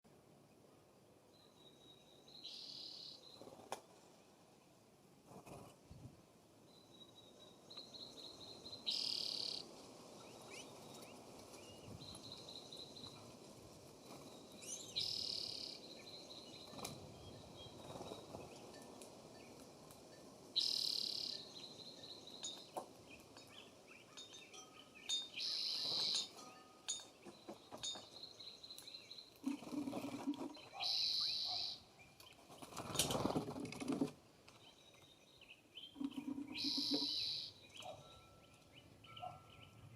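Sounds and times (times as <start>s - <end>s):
lower bird calls: 7.8s - 9.7s, 14.1s - 18.8s, 20.6s - 33.3s, 35.7s - 39.9s
thin high bird notes: 22.4s - 27.3s
harsh high bird call: 30.7s - 31.8s, 36.5s - 37.6s.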